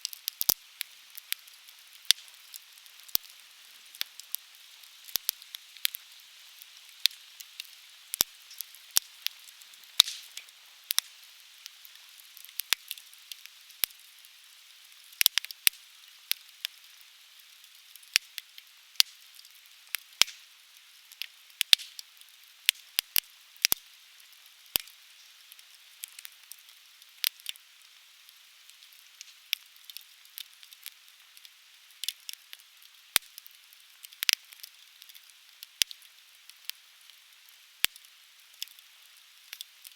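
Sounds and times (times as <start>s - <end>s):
fire hiss: 0.0s - 15.3s
bonfire crackling and popping: 0.0s - 39.9s.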